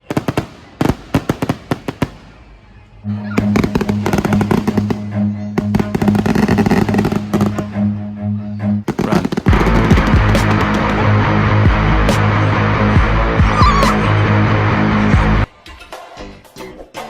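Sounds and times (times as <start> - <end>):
fireworks crackling: 0.0 - 2.8, 3.4 - 7.7, 8.9 - 11.2
music with steady bass: 3.0 - 8.9, 9.5 - 17.0.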